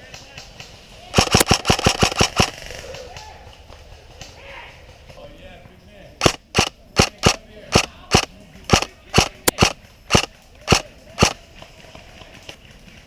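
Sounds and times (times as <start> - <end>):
airsoft rifle single shots: 1.2 - 2.6, 6.2 - 11.4.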